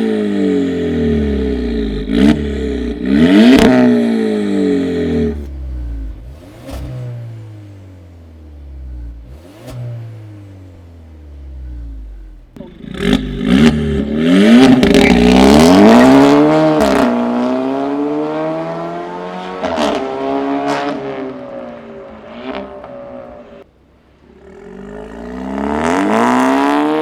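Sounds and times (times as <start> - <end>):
exhaust cracks: 0.0 - 17.4, 19.4 - 27.0
car engine revving: 0.0 - 27.0.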